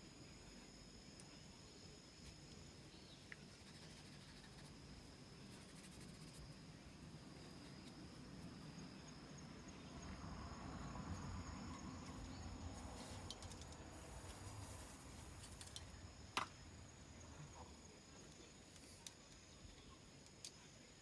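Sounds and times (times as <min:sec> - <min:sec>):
high-pitched insect trill: 0:02.9 - 0:18.6.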